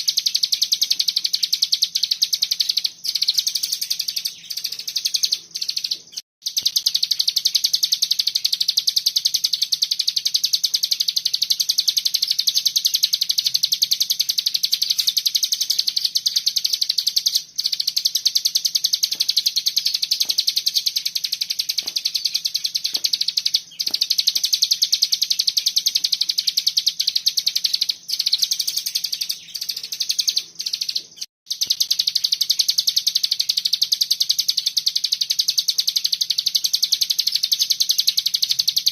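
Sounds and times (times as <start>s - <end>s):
songbird rapid trill: 0.0s - 38.9s.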